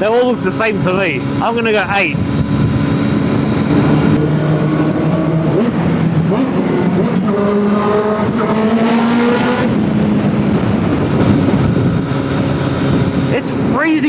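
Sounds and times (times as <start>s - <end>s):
wind noise: 0.8s - 14.0s
motorcycle engine under throttle: 2.2s - 13.4s.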